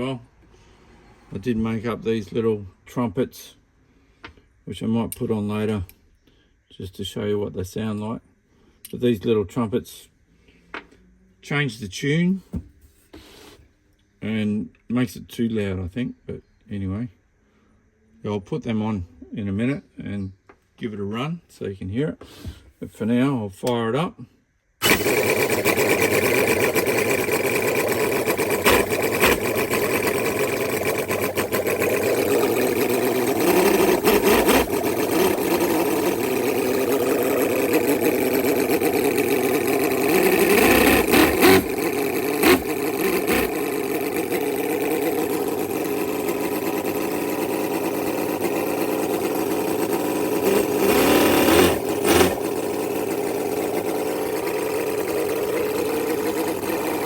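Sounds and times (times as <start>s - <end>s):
model engine running: 24.8s - 57.0s.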